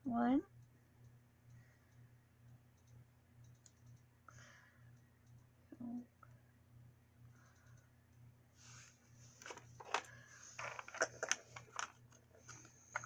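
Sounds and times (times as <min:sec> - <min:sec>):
plastic packaging crinkling: 0:09.4 - 0:13.0.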